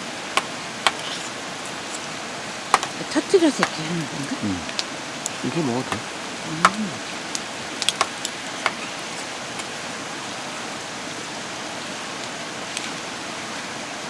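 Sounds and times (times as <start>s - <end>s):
water hissing: 0.0s - 9.9s.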